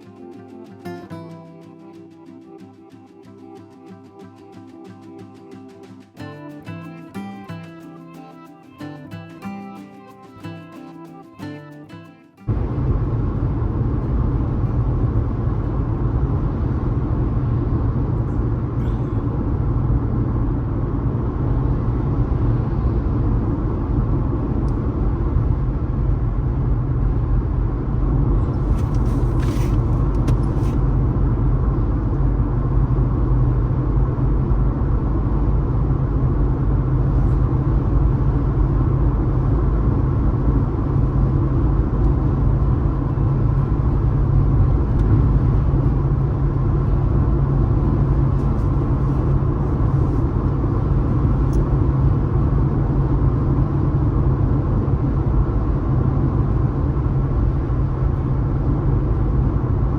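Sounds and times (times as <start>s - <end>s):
car driving at speed: 12.5s - 59.9s.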